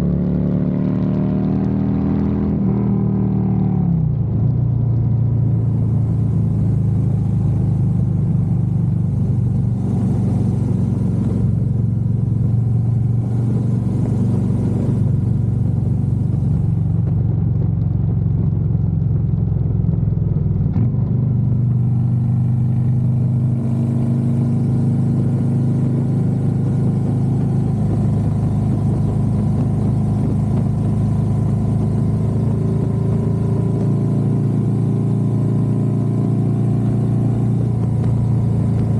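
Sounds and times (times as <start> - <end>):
motorcycle engine running: 2.6 - 38.9.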